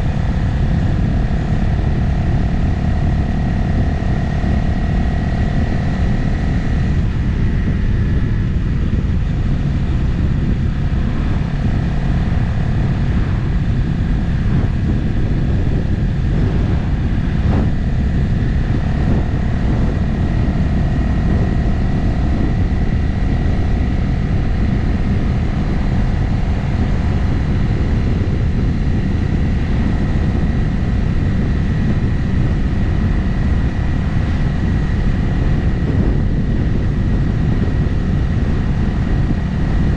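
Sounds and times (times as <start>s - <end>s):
motorcycle engine cruising: 0.0s - 39.9s
wind rushing on microphone: 0.0s - 39.9s.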